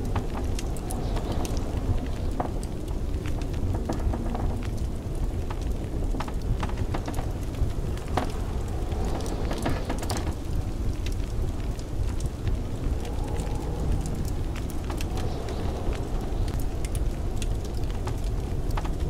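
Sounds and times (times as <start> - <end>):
blizzard wind rumbling: 0.0 - 19.0
wood fire crackling: 0.0 - 19.0.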